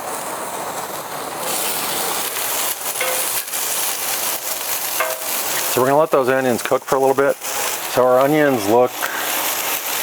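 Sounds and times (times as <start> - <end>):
onions sizzling in oil: 0.0 - 10.0.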